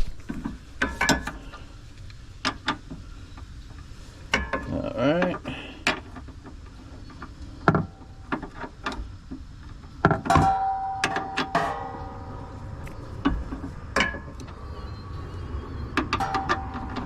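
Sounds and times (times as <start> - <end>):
ringing metallic strikes: 10.3 - 12.7, 16.2 - 17.0.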